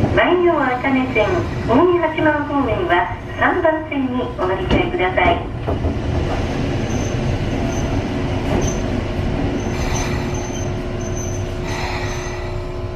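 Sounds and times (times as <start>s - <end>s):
electric train rumbling: 0.0s - 12.9s
train hum: 0.0s - 12.9s
high-pitched wheel squeals: 9.6s - 12.4s.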